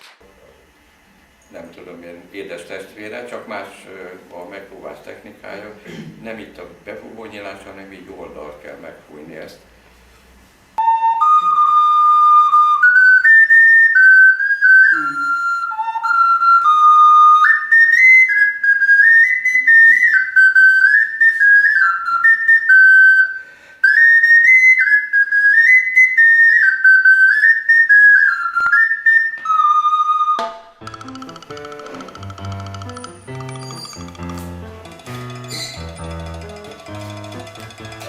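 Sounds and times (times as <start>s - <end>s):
clay whistle playing a tune: 10.8s - 34.6s, 35.3s - 37.4s.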